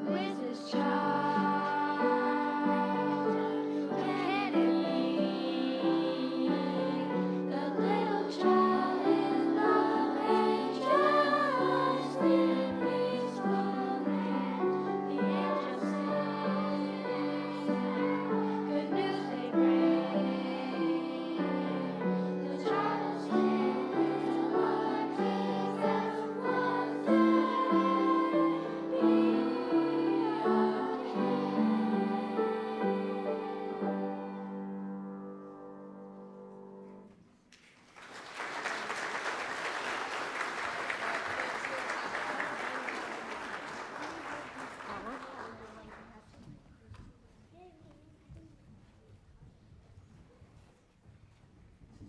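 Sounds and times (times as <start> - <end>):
choir singing: 0.0 - 36.3.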